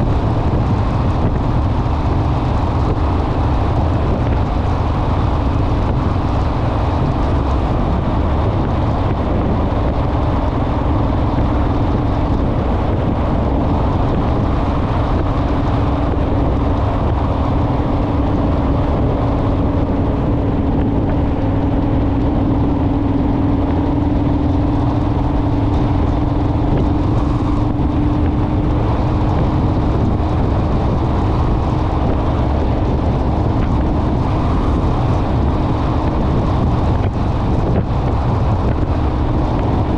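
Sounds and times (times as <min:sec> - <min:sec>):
motorcycle engine cruising: 0:00.0 - 0:39.9
wind rush on microphone: 0:00.0 - 0:39.9.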